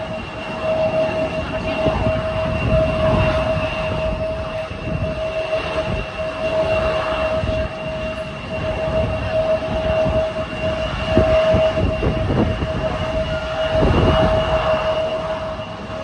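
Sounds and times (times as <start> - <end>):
jet engines whining: 0.0 - 16.0.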